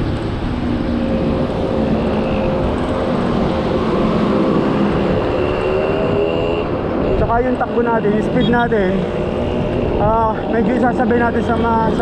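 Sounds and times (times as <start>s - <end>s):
vehicle engine humming: 0.0s - 12.0s
wind rushing over microphone: 0.0s - 12.0s.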